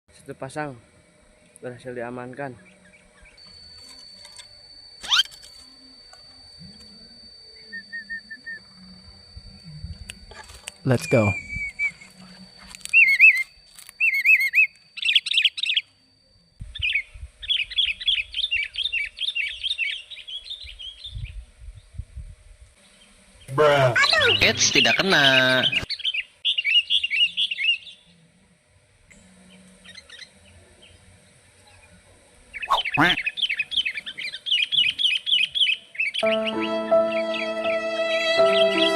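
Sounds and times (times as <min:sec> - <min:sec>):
thin high-pitched tone: 0:03.4 - 0:16.6, 0:23.5 - 0:25.9, 0:32.7 - 0:33.2, 0:36.2 - 0:38.9
bird-like whistled calls: 0:05.0 - 0:05.4, 0:11.0 - 0:12.1, 0:12.9 - 0:15.8, 0:32.6 - 0:36.8.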